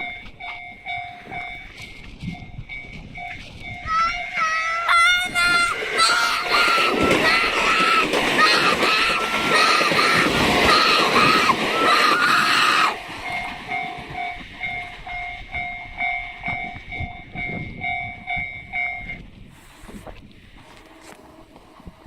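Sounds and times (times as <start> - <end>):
high tone: 0.0 - 8.1
crossing warning bell ringing: 0.0 - 19.4
train passing over crossing: 0.0 - 22.0.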